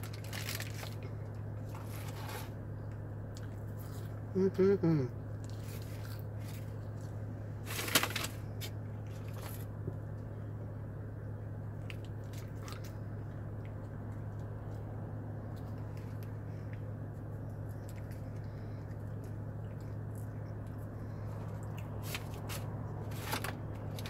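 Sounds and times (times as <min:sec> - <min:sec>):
steady low hum: 0:00.0 - 0:24.0
person chewing: 0:00.2 - 0:04.3, 0:05.2 - 0:07.3, 0:11.8 - 0:23.1.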